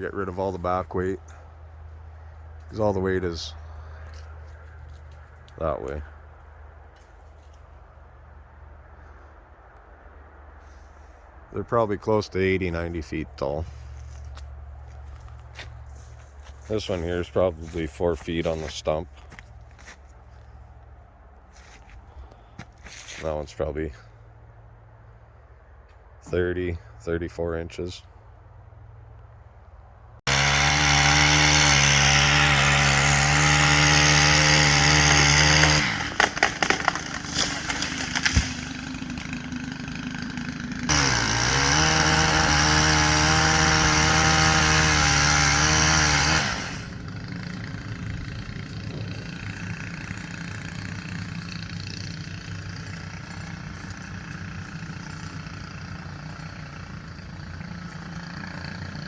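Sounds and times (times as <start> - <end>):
chainsaw cutting tree: 30.3 - 59.0
sharp cracks and knocks: 36.0 - 40.0.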